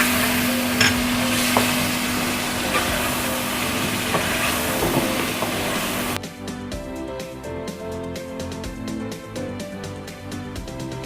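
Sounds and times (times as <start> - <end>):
food sizzling in a pan: 0.0 - 6.2.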